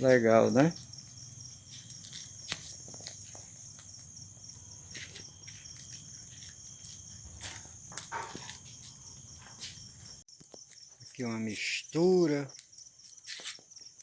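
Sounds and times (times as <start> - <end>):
crickets chirring: 0.0 - 14.0.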